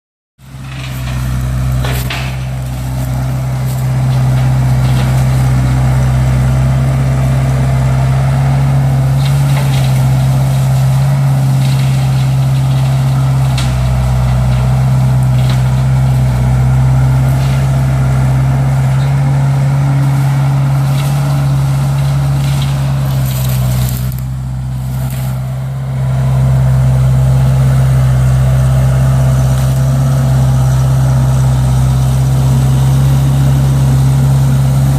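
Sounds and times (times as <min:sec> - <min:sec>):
brush cutter working: 0:00.4 - 0:34.9
diesel engine running under load: 0:00.4 - 0:34.9
wood cracking and snapping: 0:09.0 - 0:25.6.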